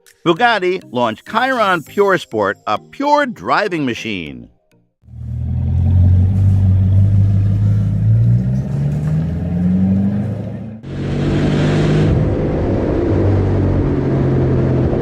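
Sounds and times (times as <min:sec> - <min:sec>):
car engine accelerating: 0:05.0 - 0:15.0.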